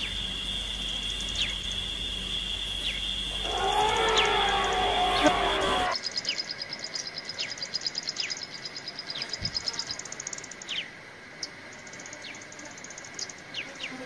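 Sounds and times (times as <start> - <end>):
short falling bird whistles: 0.0 - 6.0
faint steady high hum: 0.0 - 14.0
high bird chirps: 2.8 - 6.6.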